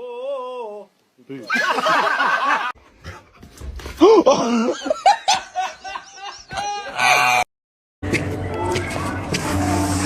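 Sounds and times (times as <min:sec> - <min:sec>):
person laughing: 0:04.0 - 0:07.2.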